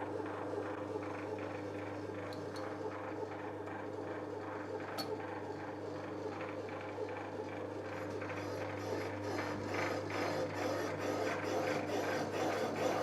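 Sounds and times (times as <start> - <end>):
metal lathe humming: 8.6 - 13.0.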